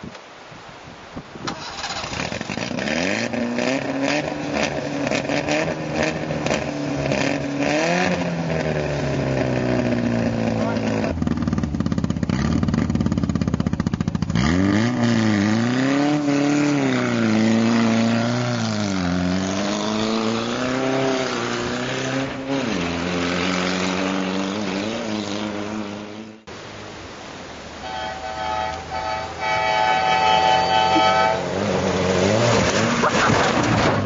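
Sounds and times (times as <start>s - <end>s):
car engine revving: 1.6s - 26.4s, 27.8s - 34.0s
steady tones: 27.8s - 31.8s.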